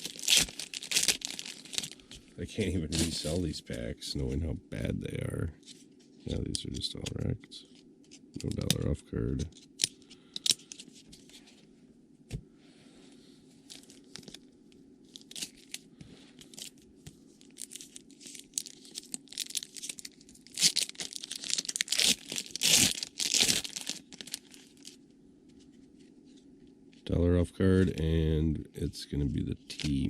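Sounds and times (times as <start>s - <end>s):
card pack wrapper tearing: 0.0s - 2.0s, 2.9s - 3.4s, 8.4s - 10.8s, 17.5s - 25.0s, 29.6s - 30.0s
faint low hum: 0.0s - 30.0s.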